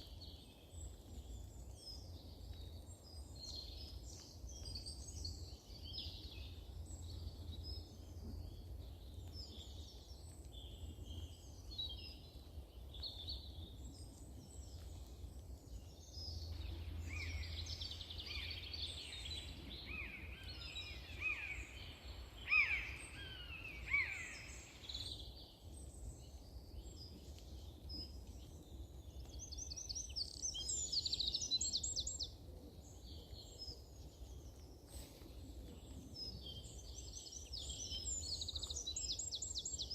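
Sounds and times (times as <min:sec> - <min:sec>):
songbirds chirping and trilling: 0:00.0 - 0:39.9
steady low rumble: 0:15.5 - 0:22.4.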